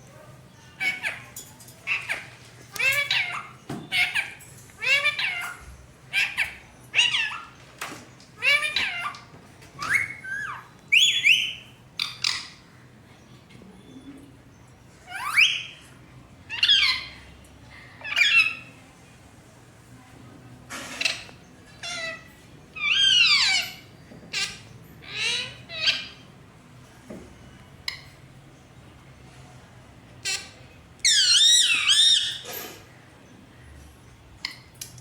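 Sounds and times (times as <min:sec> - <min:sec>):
parrot squawks and whistles: 0:09.8 - 0:12.4, 0:15.1 - 0:15.8.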